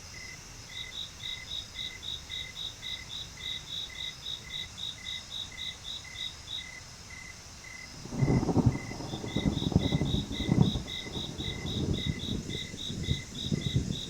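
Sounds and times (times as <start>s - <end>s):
high insect chirp: 0.0s - 14.0s
lower insect chirp: 0.0s - 14.0s.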